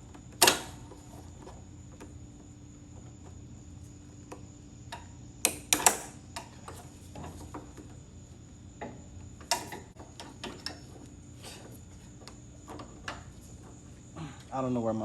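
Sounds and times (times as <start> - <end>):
tools clicking and knocking: 4.9 - 7.9, 8.8 - 11.0.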